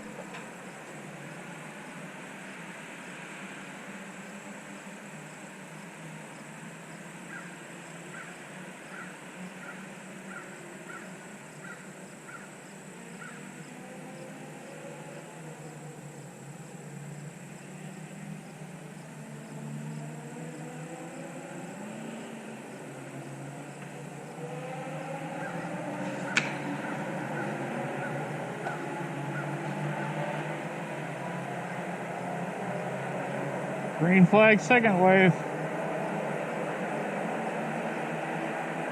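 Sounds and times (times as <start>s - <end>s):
distant race car engines: 0.0s - 38.9s.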